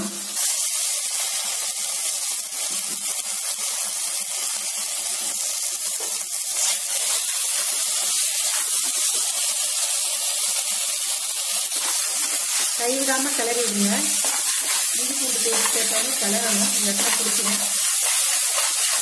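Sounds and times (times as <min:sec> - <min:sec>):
oil sizzling: 0:00.0 - 0:19.0
spatula stirring paste: 0:11.7 - 0:19.0.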